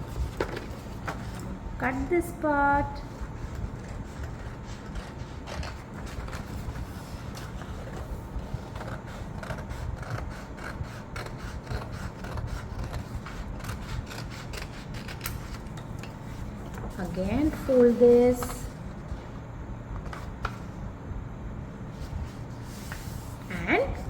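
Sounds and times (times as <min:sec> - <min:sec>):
scissors snipping paper: 0:08.6 - 0:15.7.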